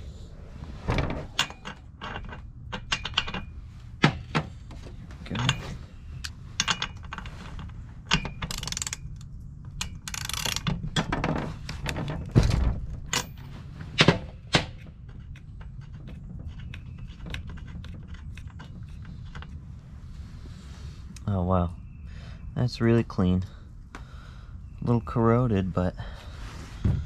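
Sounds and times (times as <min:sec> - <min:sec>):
hand tools clicking and ratcheting: 0:01.3 - 0:04.5, 0:05.2 - 0:12.0, 0:14.0 - 0:19.8.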